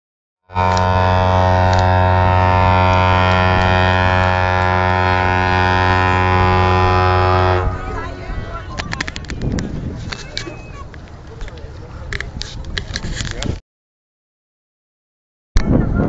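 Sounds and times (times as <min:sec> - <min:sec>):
ship's horn deep blast: 0:00.5 - 0:08.8.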